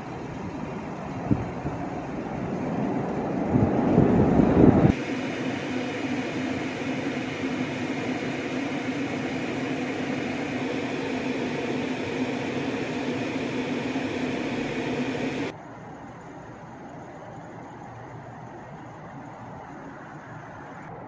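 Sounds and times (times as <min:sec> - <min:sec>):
freight train rolling past: 0:00.0 - 0:04.9
steady low hum: 0:00.0 - 0:21.0.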